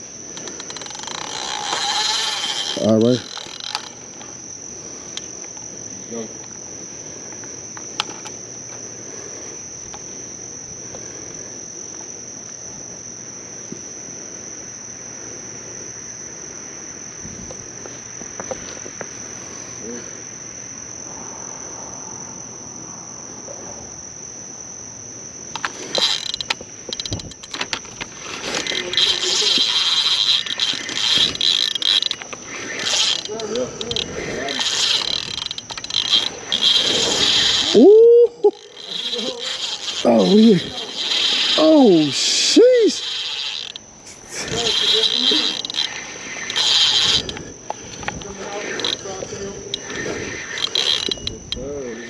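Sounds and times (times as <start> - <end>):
mechanical clicking and rattling: 0.0 - 4.4, 25.5 - 37.8, 38.5 - 52.0
night insects droning: 0.0 - 52.0.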